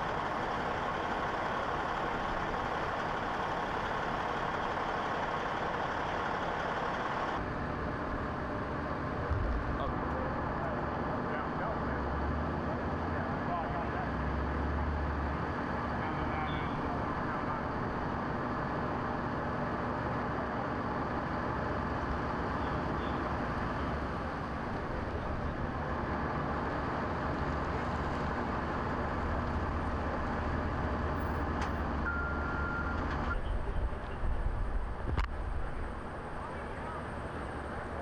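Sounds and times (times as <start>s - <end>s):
street traffic rumble: 0.0s - 38.0s.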